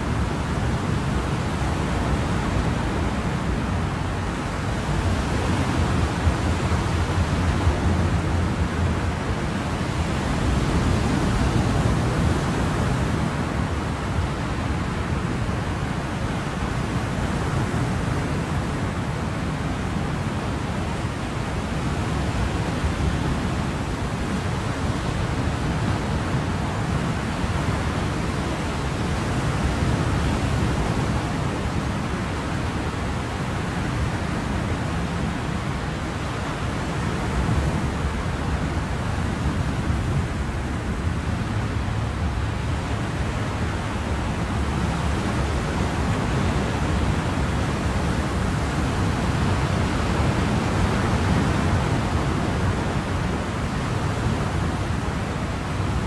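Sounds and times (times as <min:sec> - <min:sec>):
ocean waves washing: 0:00.0 - 0:56.0.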